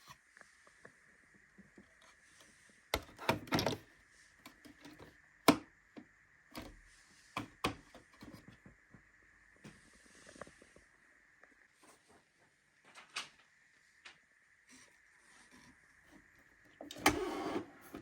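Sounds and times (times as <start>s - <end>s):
hard plastic clicks and knocks: 3.0s - 3.8s.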